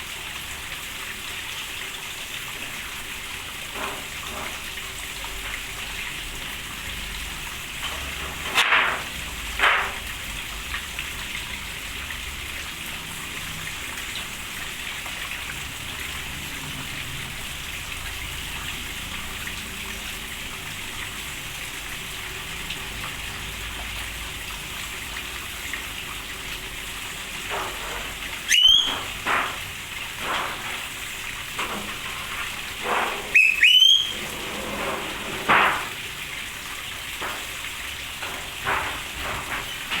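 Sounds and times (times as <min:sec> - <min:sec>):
rain falling: 0:00.0 - 0:40.0
short bird calls: 0:28.5 - 0:29.0, 0:33.3 - 0:34.2.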